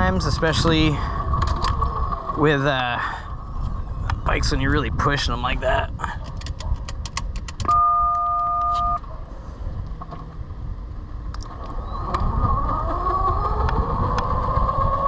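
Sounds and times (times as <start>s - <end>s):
road and wind rumble: 0.0s - 15.0s
two-tone beep: 7.7s - 9.0s.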